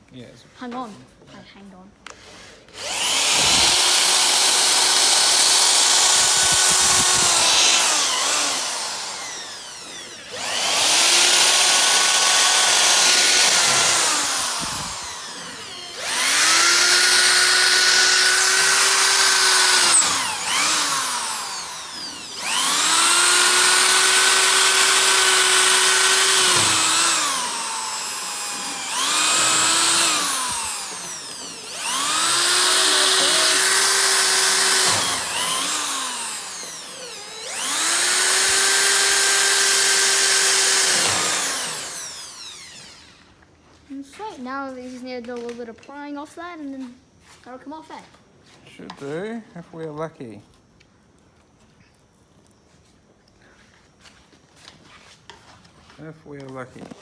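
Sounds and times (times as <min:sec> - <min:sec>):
power drill whining: 0:02.1 - 0:43.4.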